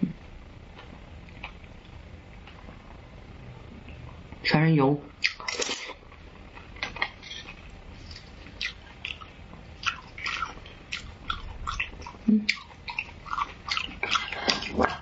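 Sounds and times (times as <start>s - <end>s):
wet chewing and mouth clicks: 6.6s - 15.0s.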